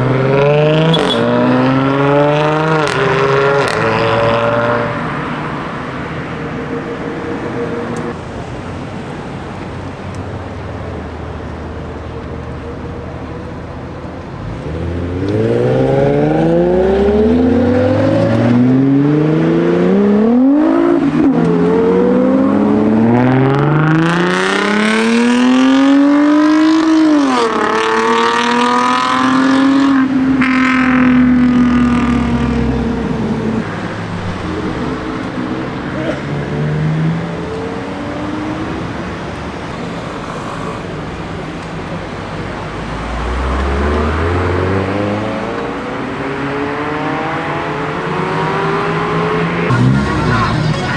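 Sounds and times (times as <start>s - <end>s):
car engine accelerating hard: 0.0s - 50.9s.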